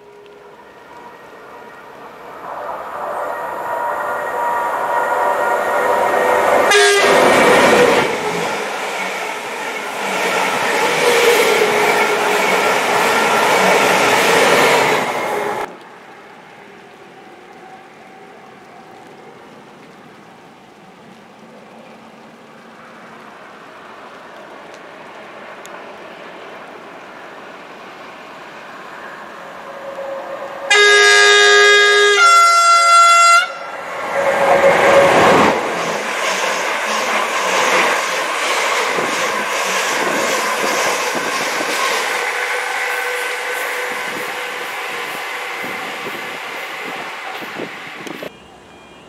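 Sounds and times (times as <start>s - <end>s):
two-tone train horn: 0.0s - 8.4s, 29.6s - 35.7s, 42.3s - 46.2s
electric train running: 0.0s - 15.7s, 33.8s - 48.3s
wheels rushing on rail: 0.0s - 48.8s.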